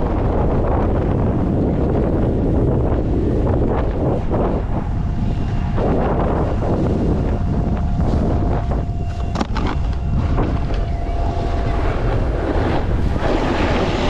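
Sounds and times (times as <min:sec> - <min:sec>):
wind buffeting microphone: 0:00.0 - 0:14.0
faint steady tone: 0:04.6 - 0:13.1.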